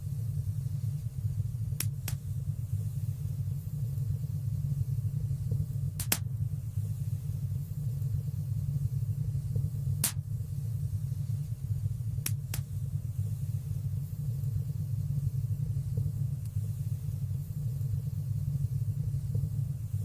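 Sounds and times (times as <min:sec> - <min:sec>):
fire crackling pops: 0:01.6 - 0:02.5, 0:05.4 - 0:06.6, 0:09.4 - 0:10.6, 0:12.0 - 0:13.1.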